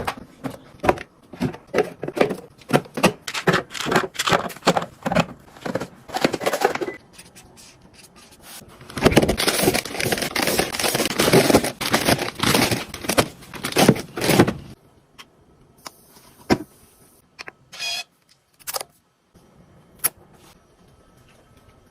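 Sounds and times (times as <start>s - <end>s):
plastic packaging rustling: 8.7s - 14.8s.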